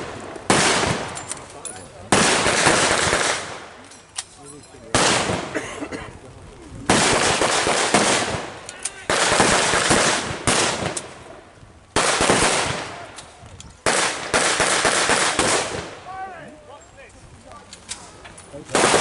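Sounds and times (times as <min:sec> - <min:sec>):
loud gunfire bursts with echo: 0:00.0 - 0:01.2, 0:02.1 - 0:03.7, 0:04.9 - 0:05.6, 0:06.9 - 0:11.0, 0:12.0 - 0:13.0, 0:13.8 - 0:16.0, 0:18.7 - 0:19.0.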